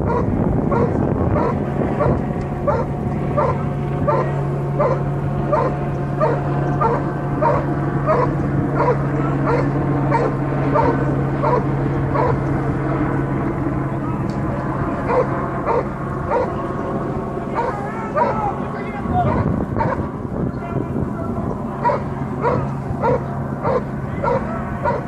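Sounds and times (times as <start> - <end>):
steady low hum: 0.0 - 25.0
dog barking: 0.1 - 12.4, 15.1 - 16.6, 17.6 - 18.4, 19.2 - 20.1, 21.8 - 25.0.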